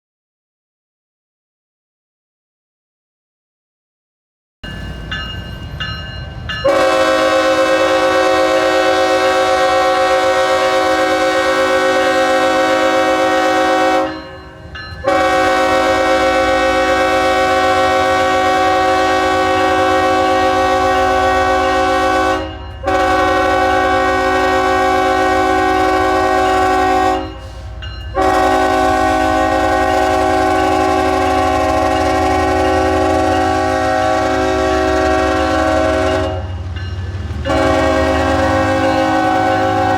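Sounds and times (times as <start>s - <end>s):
locomotive air horn blasts: 6.6s - 14.3s, 15.0s - 36.6s, 37.4s - 39.9s
locomotive engine rumble: 14.0s - 39.9s.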